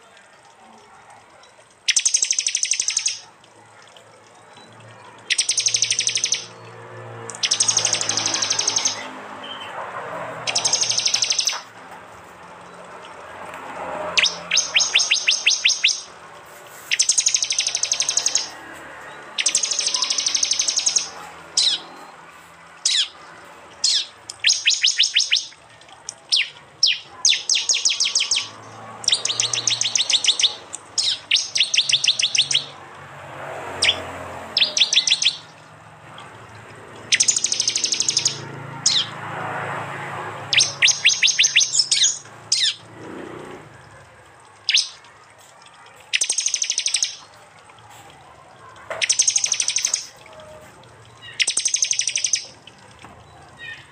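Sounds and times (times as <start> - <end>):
high-pitched bird trills: 1.9 - 3.3, 5.2 - 6.6, 7.3 - 9.7, 10.5 - 11.7, 14.1 - 16.1, 16.9 - 18.6, 19.4 - 22.0, 22.8 - 32.8, 33.8 - 34.0, 34.6 - 35.7, 37.1 - 39.2, 40.5 - 42.8, 44.7 - 45.0, 46.1 - 47.3, 49.0 - 50.3, 51.2 - 52.6
sharp bird chips: 1.9 - 3.3, 4.6 - 9.7, 10.4 - 11.8, 12.9 - 32.8, 33.4 - 36.2, 37.0 - 39.8, 40.4 - 42.9, 44.6 - 47.8, 49.0 - 50.4, 51.0 - 53.9.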